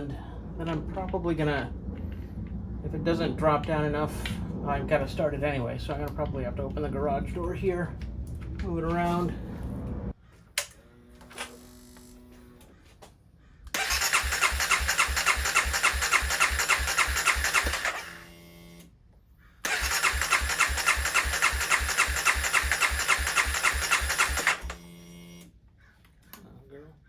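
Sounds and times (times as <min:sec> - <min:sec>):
engine cranking by electric starter: 0:13.7 - 0:18.9, 0:19.6 - 0:25.5.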